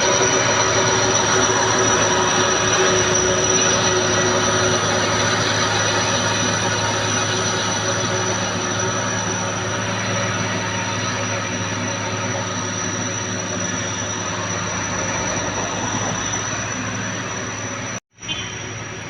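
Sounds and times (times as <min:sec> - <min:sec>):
diesel truck engine running: 0:00.0 - 0:19.0
high whine: 0:00.0 - 0:19.0.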